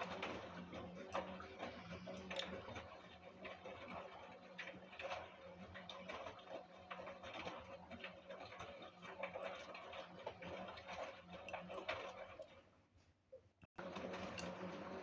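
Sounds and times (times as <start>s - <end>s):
washing machine hum: 0.0s - 12.6s, 13.8s - 15.0s.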